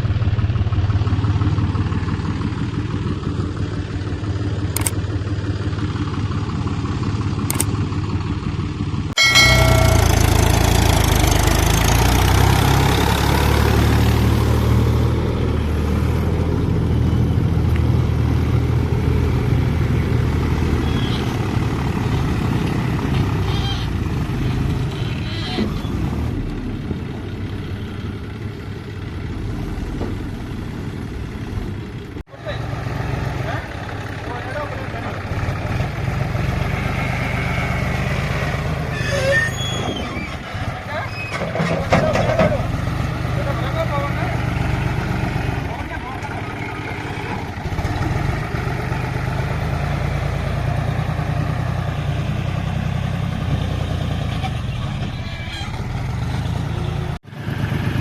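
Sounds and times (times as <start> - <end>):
diesel engine running at low revs: 0.0 - 39.0, 42.6 - 58.0.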